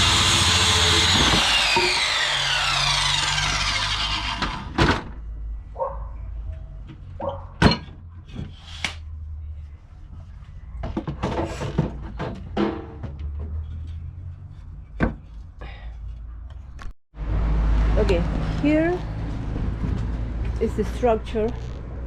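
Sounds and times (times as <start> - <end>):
power tool motor whining: 0.0 - 4.8.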